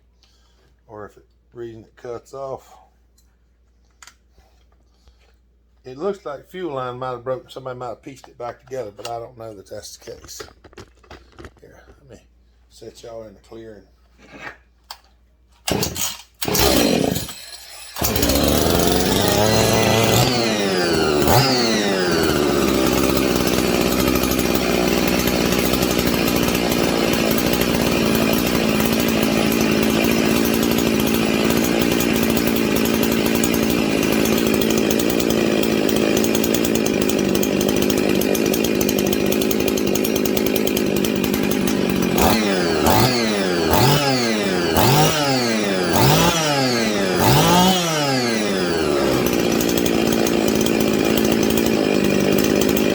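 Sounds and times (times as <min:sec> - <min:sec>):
chainsaw pull-start: 0:09.8 - 0:12.0, 0:15.6 - 0:52.9
chainsaw revving and running: 0:15.7 - 0:52.9.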